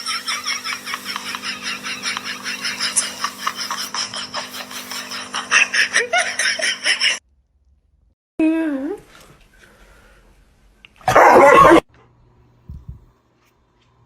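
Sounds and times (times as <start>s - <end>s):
person laughing in breathy snickers: 0.0s - 7.2s
steady background hum: 0.0s - 7.2s.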